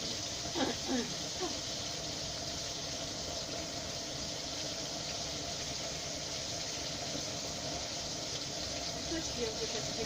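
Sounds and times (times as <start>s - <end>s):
fish frying in oil: 0.0s - 10.0s.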